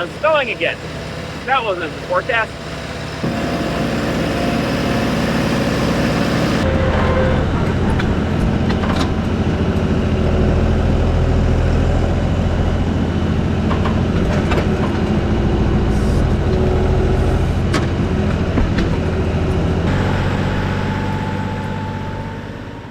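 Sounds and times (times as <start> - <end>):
vehicle engine droning: 0.0 - 22.9.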